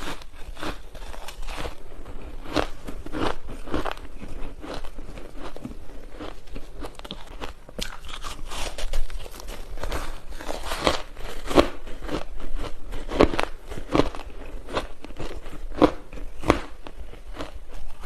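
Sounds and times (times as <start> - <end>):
ice crunching being chewed: 0.0 - 18.0.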